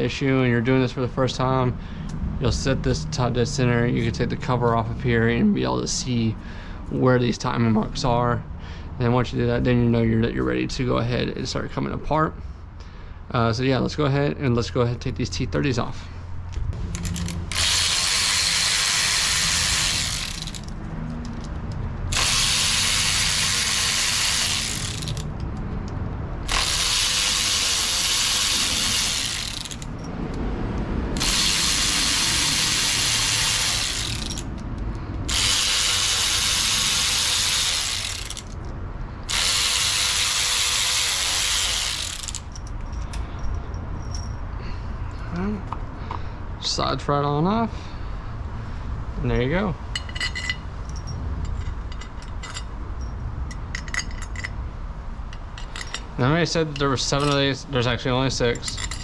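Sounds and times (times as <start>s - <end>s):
ratchet backing out bolts: 16.5s - 30.4s, 31.1s - 44.4s, 49.4s - 54.6s, 55.3s - 59.0s.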